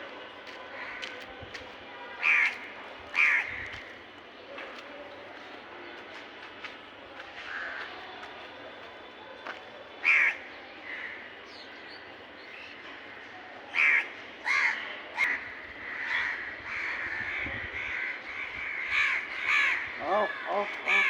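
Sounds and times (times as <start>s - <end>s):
crows cawing: 2.2s - 3.6s, 10.0s - 11.2s, 13.7s - 21.0s.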